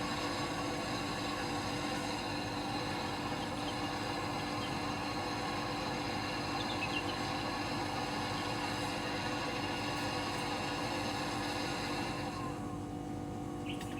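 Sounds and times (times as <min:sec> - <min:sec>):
compressor humming with hiss: 0:00.0 - 0:13.9.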